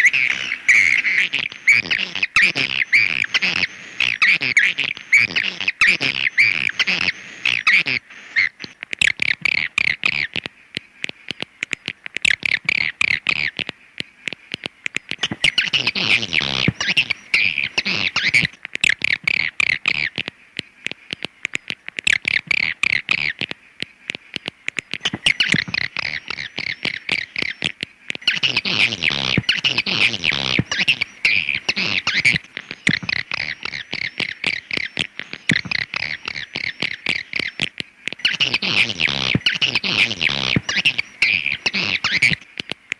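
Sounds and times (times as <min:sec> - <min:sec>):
recorded swiftlet twitters: 0:25.0 - 0:42.4.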